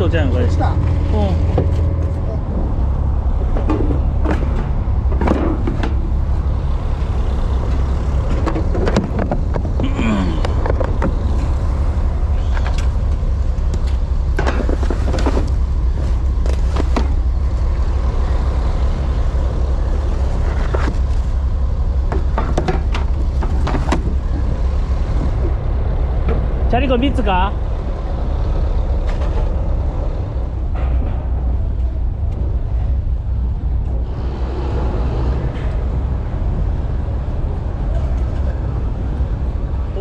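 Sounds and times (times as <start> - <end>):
diesel engine droning: 0.0 - 40.0
knocks and clatter on deck: 22.0 - 24.6.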